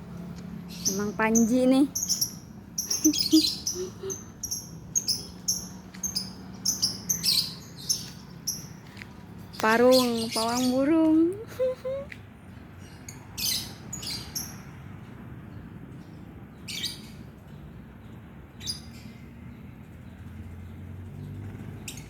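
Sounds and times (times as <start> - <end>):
lovebird harsh chirps: 0.8 - 8.7.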